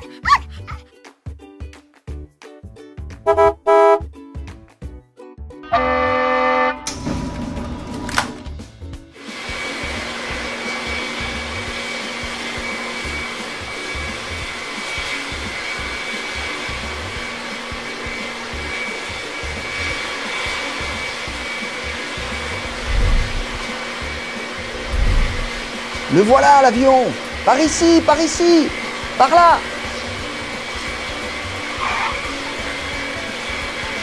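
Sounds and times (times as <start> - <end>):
short tone: 3.3 - 4.0
jet engine rushing with high whine: 9.2 - 34.0
whoosh: 22.6 - 23.7, 24.8 - 25.7.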